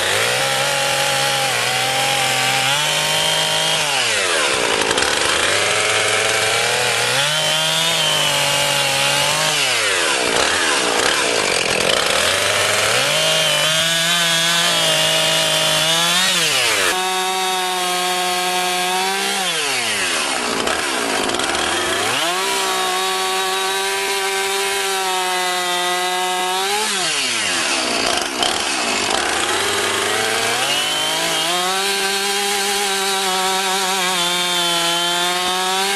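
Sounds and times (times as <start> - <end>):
chainsaw revving: 0.0 - 35.9.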